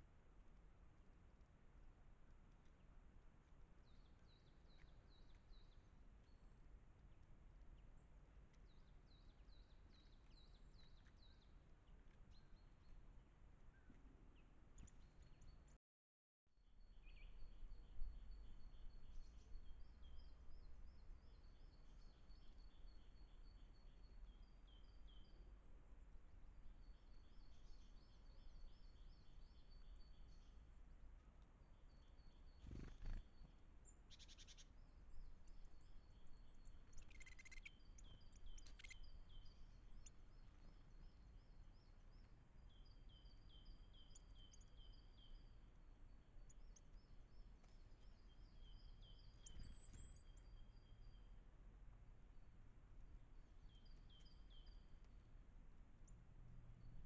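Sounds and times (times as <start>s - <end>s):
sharp bird calls: 32.5s - 33.4s, 36.9s - 40.2s.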